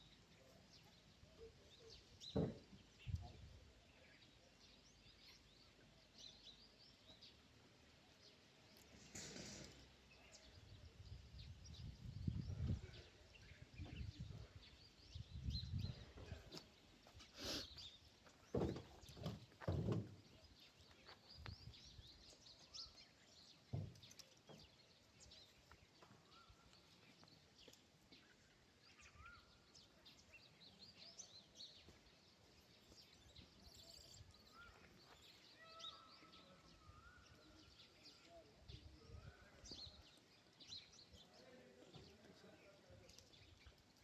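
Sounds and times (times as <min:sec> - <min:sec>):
faint high chirps: 0:32.6 - 0:39.4.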